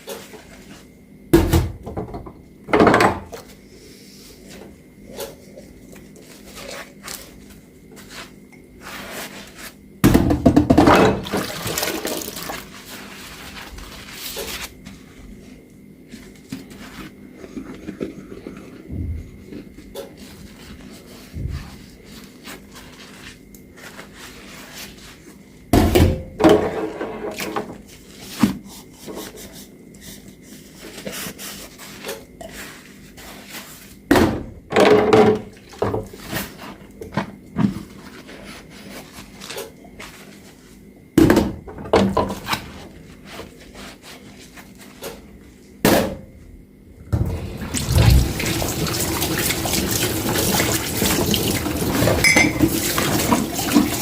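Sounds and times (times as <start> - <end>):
dishes clunking in a sink: 1.4 - 3.4, 10.1 - 11.5, 34.2 - 36.1, 51.9 - 54.0
faucet water running: 47.2 - 54.0.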